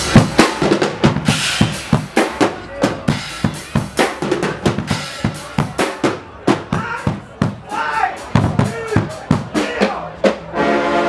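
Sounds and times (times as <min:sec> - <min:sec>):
bass drum and snare beating: 0:00.0 - 0:10.4.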